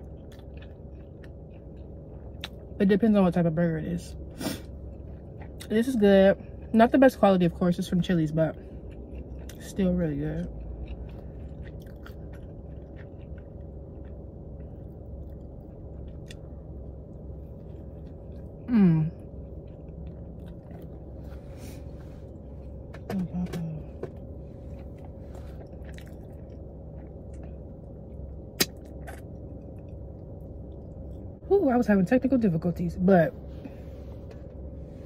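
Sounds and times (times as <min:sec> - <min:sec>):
woman chewing softly: 0:00.0 - 0:02.8, 0:08.5 - 0:09.7, 0:10.4 - 0:23.0, 0:24.0 - 0:31.4
low hum: 0:00.0 - 0:35.0.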